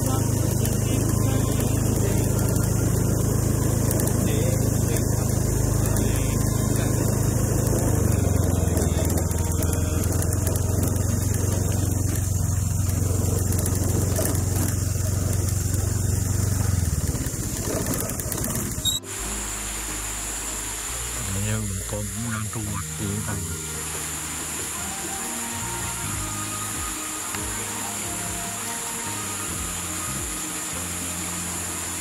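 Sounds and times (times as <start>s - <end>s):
small motorbike engine running: 0.0s - 32.0s.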